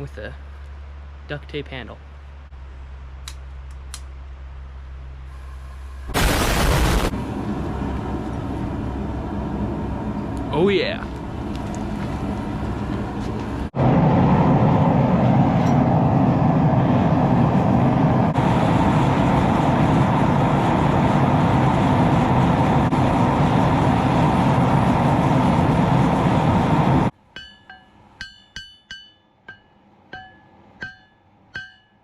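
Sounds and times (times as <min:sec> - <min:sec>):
forge rushing noise: 0:06.0 - 0:11.0.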